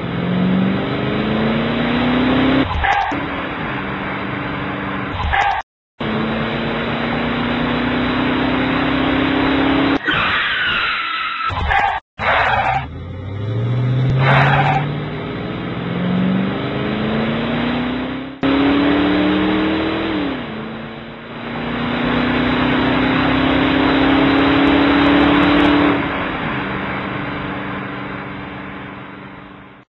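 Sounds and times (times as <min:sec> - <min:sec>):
car engine revving: 0:00.0 - 0:10.0, 0:12.2 - 0:29.5.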